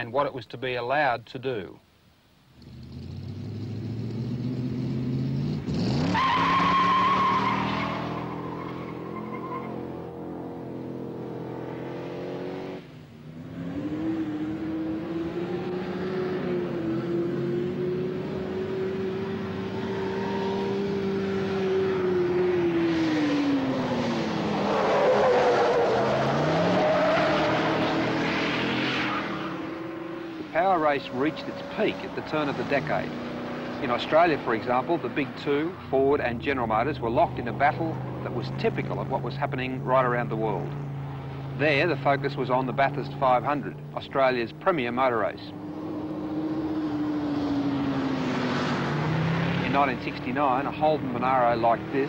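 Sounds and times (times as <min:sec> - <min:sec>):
race car engine revving: 0:02.6 - 0:52.0
tyres squealing: 0:06.1 - 0:10.0.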